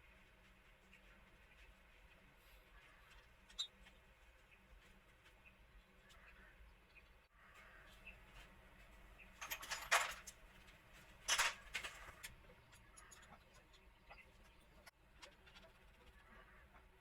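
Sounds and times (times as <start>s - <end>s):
metal parts clinking and rattling: 9.3s - 16.0s.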